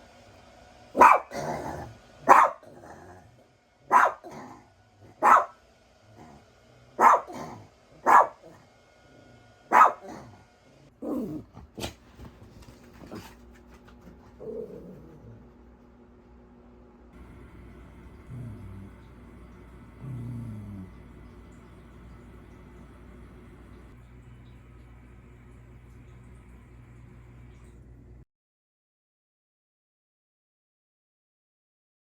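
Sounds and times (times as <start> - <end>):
small dog barking: 1.0 - 3.2, 3.8 - 5.6, 6.2 - 8.6, 9.6 - 10.4.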